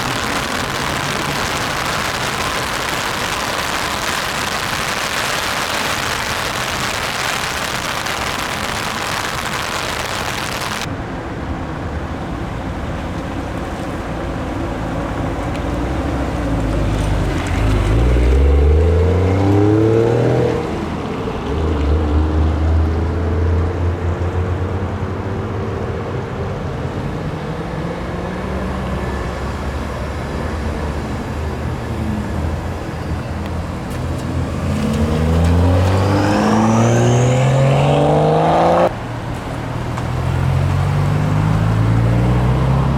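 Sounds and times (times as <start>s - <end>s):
car engine revving and pulling away: 0.0s - 10.9s, 14.8s - 42.9s
steady hiss: 0.0s - 10.9s.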